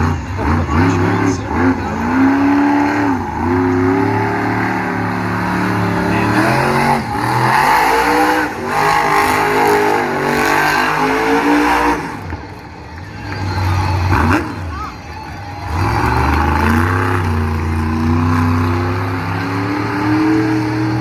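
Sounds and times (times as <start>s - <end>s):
monster truck engine revving: 0.0s - 21.0s.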